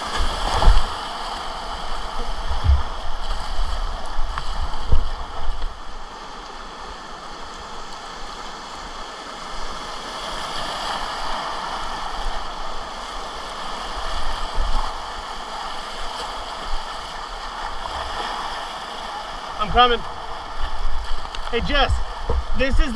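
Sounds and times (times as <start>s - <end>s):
whitewater rushing: 0.0s - 22.9s
low rumbling on microphone: 2.1s - 5.4s.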